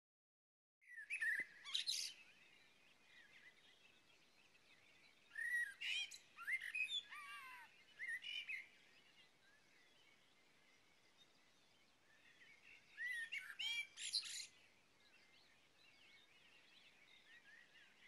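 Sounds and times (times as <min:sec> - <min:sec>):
small birds chirping and whistling: 0:00.8 - 0:18.0
faint outdoor hiss: 0:00.9 - 0:18.0.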